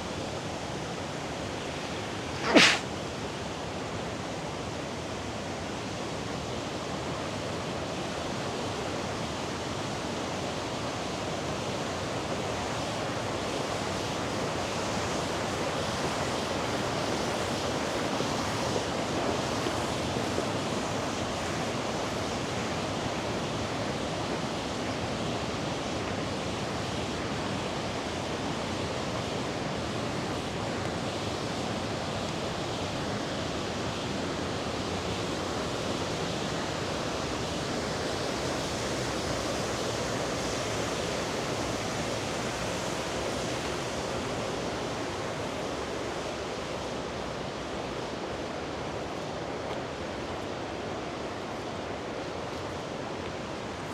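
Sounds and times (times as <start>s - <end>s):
river water rushing: 2.3s - 2.8s, 36.2s - 53.9s.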